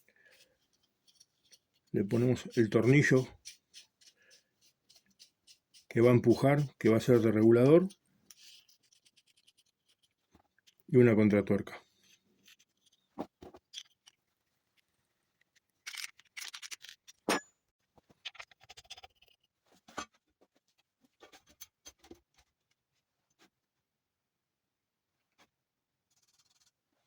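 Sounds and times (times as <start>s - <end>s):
small metal parts clicking: 15.5s - 17.2s.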